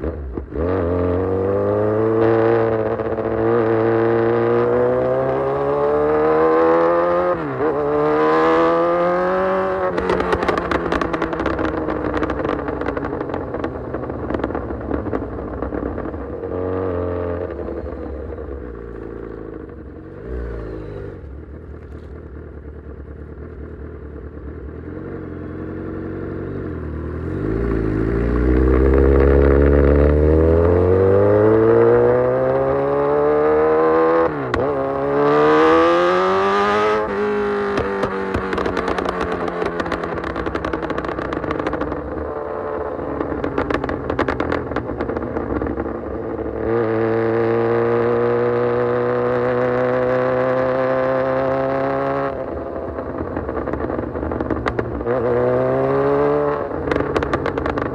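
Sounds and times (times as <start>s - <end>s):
motorcycle engine revving: 0.0s - 57.9s
exhaust pops and crackles: 10.0s - 16.6s, 37.6s - 47.0s, 52.3s - 57.9s.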